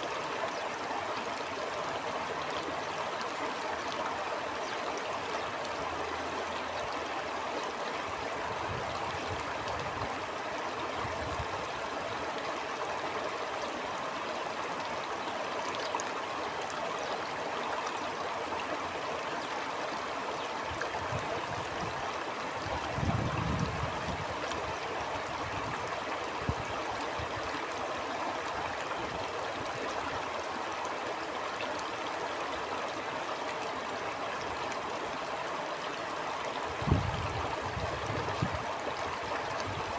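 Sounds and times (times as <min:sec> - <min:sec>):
stream rushing and gurgling: 0:00.0 - 0:39.9
wind gusts: 0:20.7 - 0:27.4, 0:36.7 - 0:39.9.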